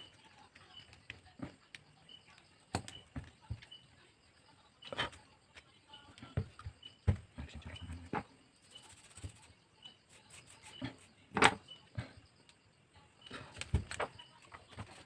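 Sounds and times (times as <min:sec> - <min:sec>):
small tools clicking and tapping: 0:00.0 - 0:04.0.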